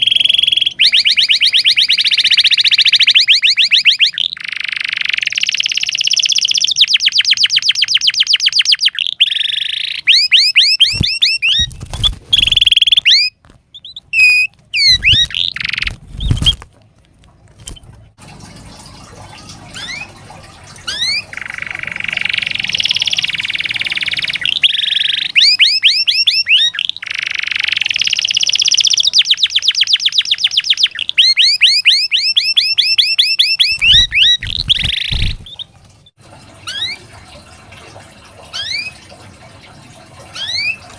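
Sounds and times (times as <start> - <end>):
canary singing trills: 0.0 - 16.6, 19.7 - 20.2, 20.8 - 35.7, 38.5 - 39.0, 40.3 - 40.9.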